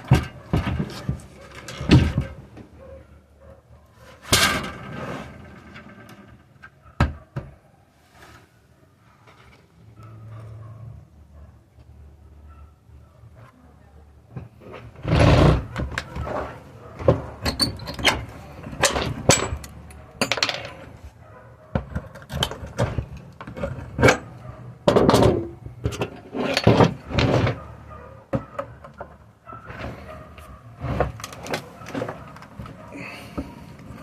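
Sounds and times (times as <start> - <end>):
knocks and clatters: 0.0 - 2.7, 21.7 - 27.6.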